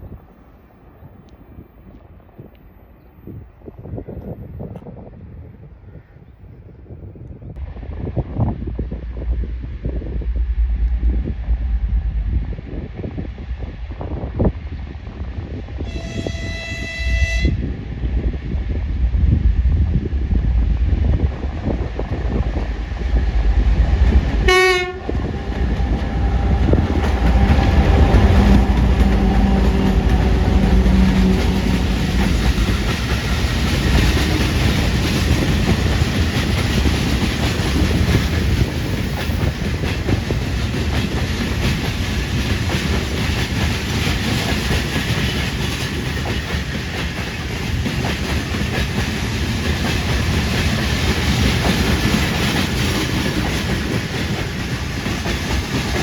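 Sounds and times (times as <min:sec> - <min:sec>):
diesel locomotive engines running: 0:07.6 - 0:56.0
locomotive horn blast: 0:15.8 - 0:17.7, 0:24.4 - 0:25.2, 0:27.4 - 0:32.4.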